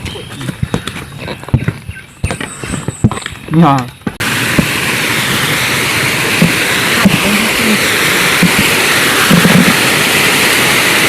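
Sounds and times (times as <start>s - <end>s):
water rushing: 4.2s - 11.0s.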